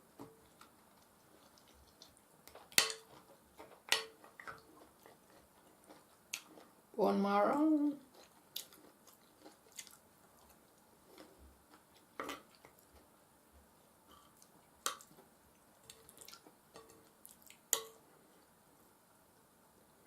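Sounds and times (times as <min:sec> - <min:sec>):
person chewing: 0:00.4 - 0:06.8, 0:08.0 - 0:13.1, 0:14.1 - 0:18.0.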